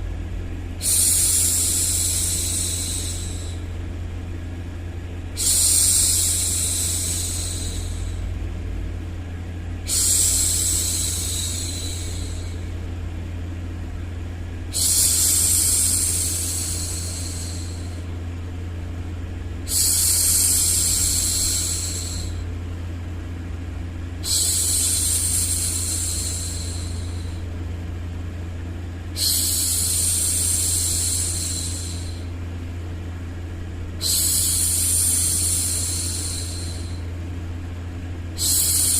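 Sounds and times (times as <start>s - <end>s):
steady low hum: 0.0s - 38.9s
woman hushing shhh: 0.8s - 3.8s, 5.4s - 8.3s, 9.8s - 12.8s, 14.6s - 18.1s, 19.6s - 22.5s, 24.2s - 27.6s, 29.1s - 32.4s, 34.0s - 37.1s, 38.3s - 38.9s.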